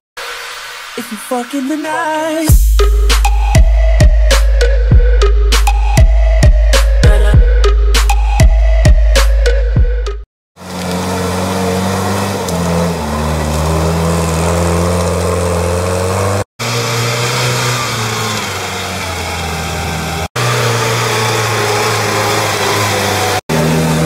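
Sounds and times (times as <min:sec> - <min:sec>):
vehicle engine running: 0:09.8 - 0:24.0.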